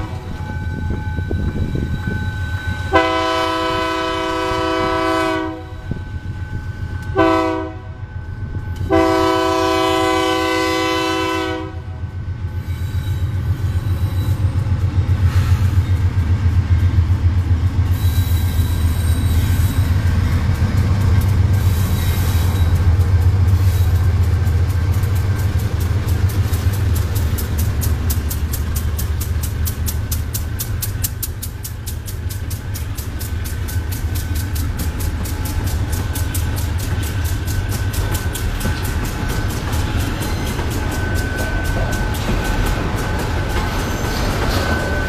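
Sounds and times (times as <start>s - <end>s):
locomotive engine drone: 0.0s - 45.0s
locomotive air horn blasts: 2.9s - 6.0s, 7.1s - 8.1s, 8.9s - 12.0s
wagon wheels clickety-clack: 22.7s - 45.0s.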